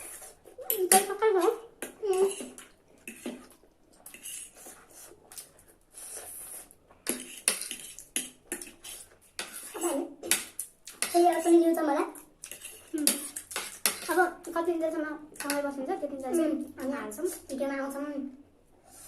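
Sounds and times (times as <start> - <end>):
noodles being slurped and chewed: 0.0 - 0.8, 2.0 - 11.0
cutlery clinking on plates: 12.4 - 14.1.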